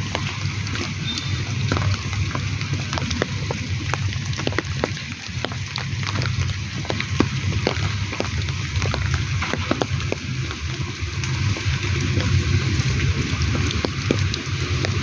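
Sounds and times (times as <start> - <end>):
rain hissing: 0.0 - 15.0
raindrops ticking: 0.0 - 15.0.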